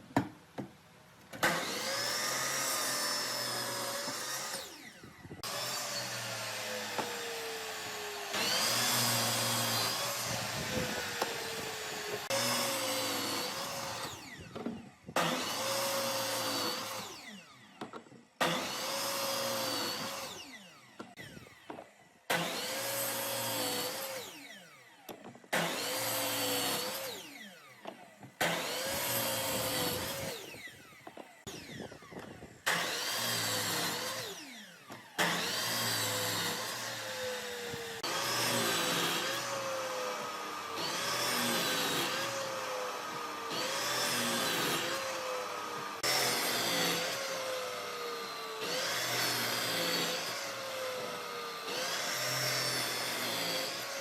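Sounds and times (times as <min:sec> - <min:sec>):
power tool whining on wood: 0:01.3 - 0:54.0.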